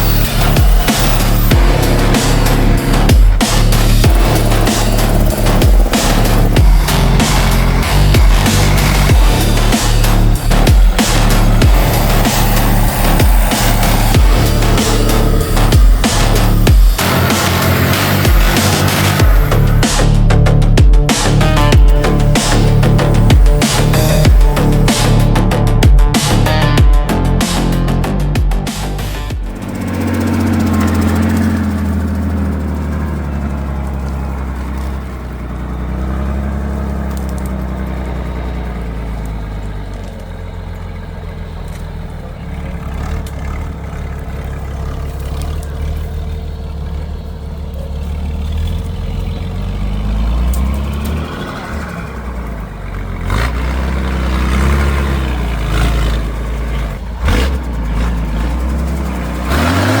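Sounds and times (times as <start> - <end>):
truck engine revving: 0.0 - 60.0.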